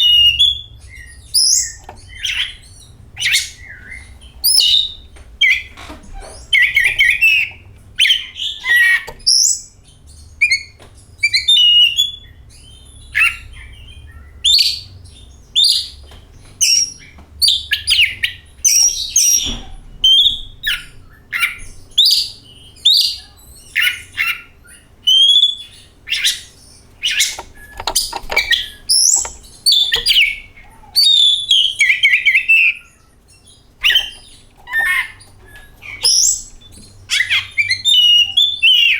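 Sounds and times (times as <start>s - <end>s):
harsh bird chattering: 26.2s - 32.5s, 33.6s - 38.9s.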